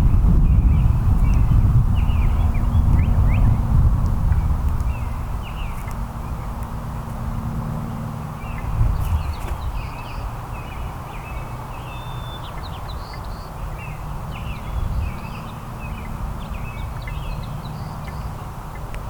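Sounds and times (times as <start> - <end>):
steady low rumble: 0.0 - 11.6
small songbirds chirping: 0.0 - 19.0.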